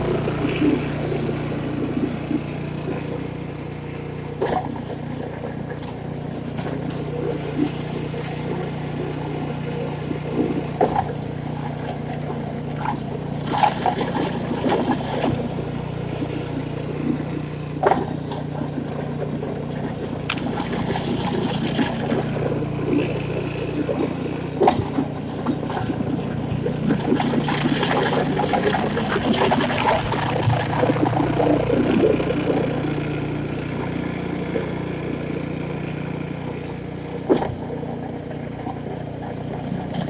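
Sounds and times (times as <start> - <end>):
snowblower engine running: 0.0 - 40.0.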